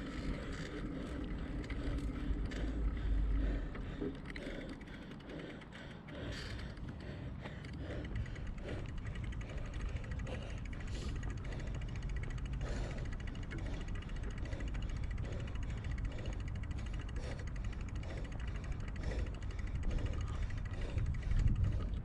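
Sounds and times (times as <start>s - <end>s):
bicycle tyre and drivetrain noise: 0.0s - 22.0s
small rattles: 0.0s - 22.0s
wind rumble on microphone: 19.6s - 22.0s.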